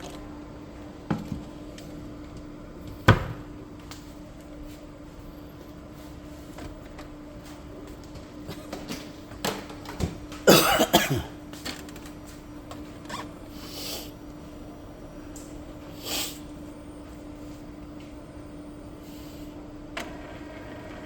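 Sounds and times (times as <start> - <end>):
steady low hum: 0.0 - 21.0
person coughing: 10.4 - 11.4.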